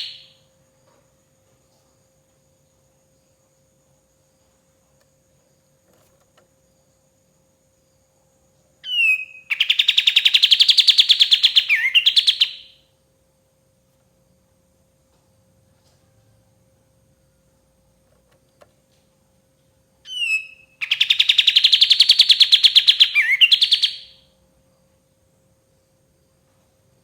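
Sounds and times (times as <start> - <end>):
bird singing chattering trill: 0.0 - 0.4, 8.8 - 12.8, 20.1 - 24.2.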